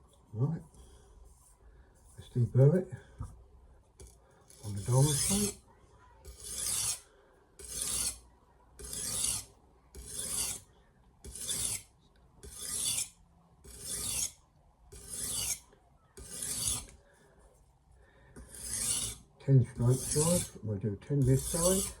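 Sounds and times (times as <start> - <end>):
knife rasping on sharpening plate: 4.0 - 5.6, 6.2 - 7.0, 7.6 - 8.2, 8.8 - 10.6, 11.3 - 11.8, 12.4 - 15.6, 16.2 - 17.0, 18.4 - 19.2, 19.8 - 20.6, 21.2 - 22.0.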